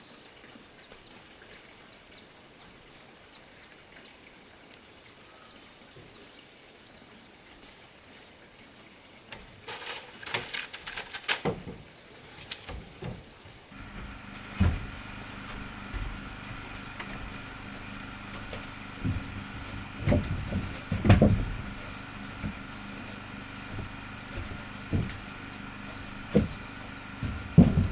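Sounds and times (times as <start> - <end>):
sharp knocks and clatters: 12.6 - 27.9
motor humming: 13.7 - 27.9.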